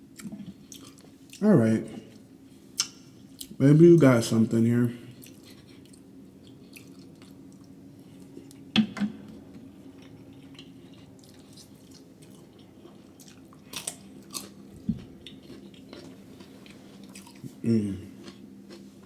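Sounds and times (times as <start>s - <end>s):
steady low hum: 0.0s - 19.0s
chewing and biting food: 0.2s - 1.4s, 5.2s - 8.7s, 9.6s - 19.0s.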